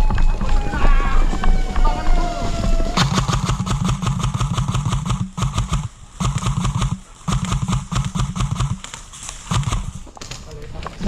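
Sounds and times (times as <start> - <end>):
airsoft gun firing full auto: 3.0 - 10.0.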